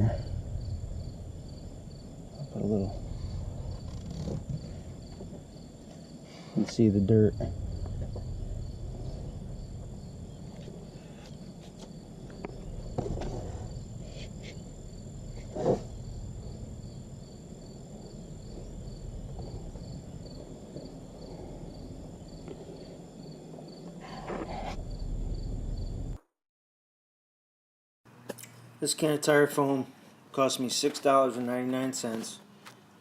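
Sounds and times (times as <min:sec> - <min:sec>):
low rumble: 0:00.0 - 0:05.9, 0:06.8 - 0:23.0, 0:24.1 - 0:26.2
crickets chirping: 0:00.0 - 0:26.2.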